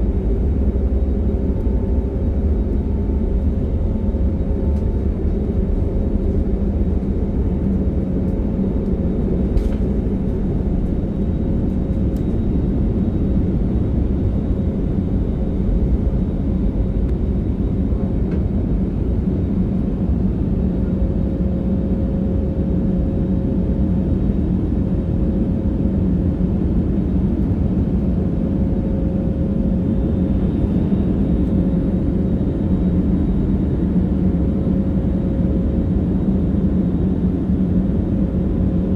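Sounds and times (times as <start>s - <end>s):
faint steady hum: 0.0s - 21.6s
airliner cabin rumble: 0.0s - 38.9s.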